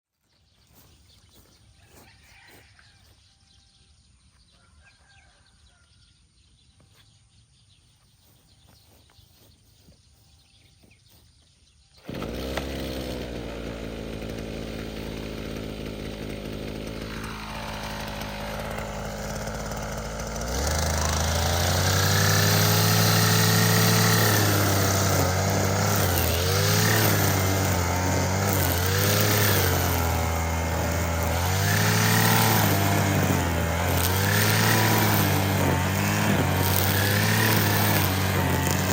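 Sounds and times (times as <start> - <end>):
string trimmer engine running: 11.7 - 38.9.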